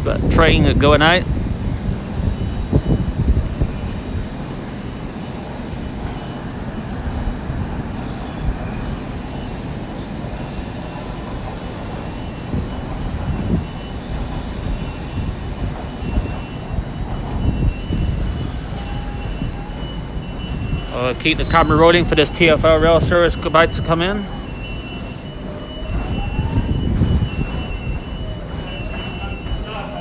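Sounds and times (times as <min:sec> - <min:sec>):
train low rumble: 0:00.0 - 0:30.0
train wheels squealing on rails: 0:00.1 - 0:30.0.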